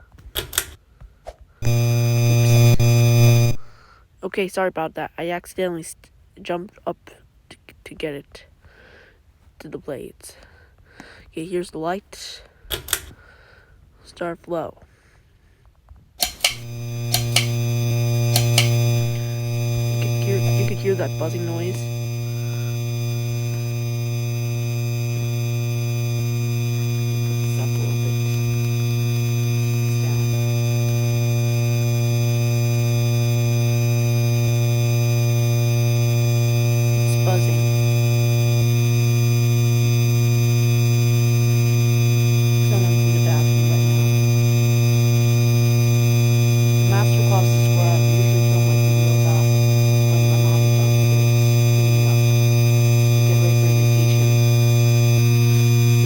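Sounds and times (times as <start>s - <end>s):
ceiling fan motor buzzing: 1.6s - 3.8s, 16.2s - 56.0s.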